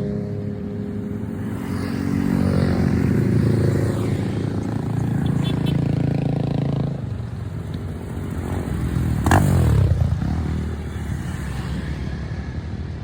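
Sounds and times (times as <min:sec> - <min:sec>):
motorcycles riding past: 0:00.0 - 0:13.0.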